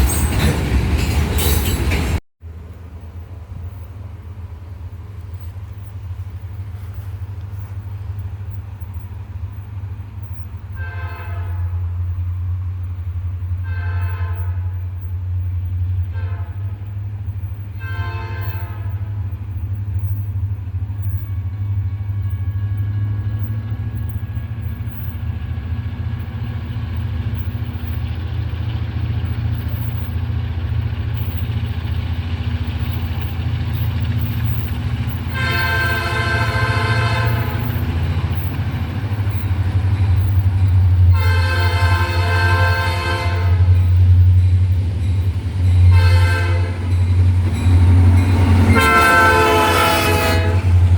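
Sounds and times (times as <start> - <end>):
diesel locomotives rumbling: 0.0 - 50.9
locomotive air horn blasts: 10.7 - 12.0, 13.6 - 14.8, 16.1 - 16.8, 17.8 - 19.3, 35.3 - 37.8, 41.1 - 43.8, 45.8 - 46.9, 48.5 - 50.9.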